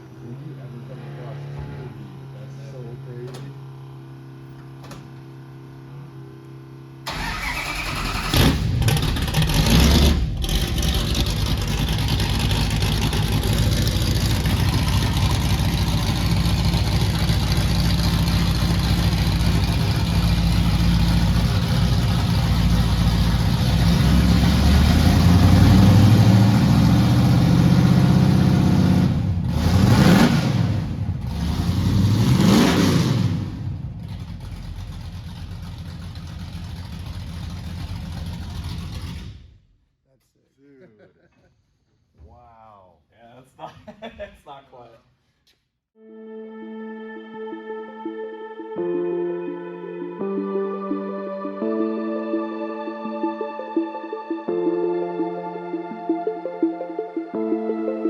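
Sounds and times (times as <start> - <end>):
car engine starting and revving: 7.0 - 39.7.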